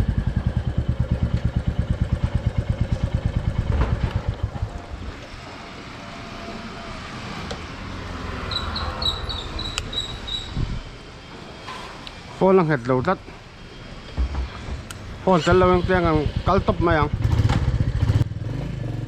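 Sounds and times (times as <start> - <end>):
motorcycle engine running: 0.0 - 6.0, 14.4 - 19.0.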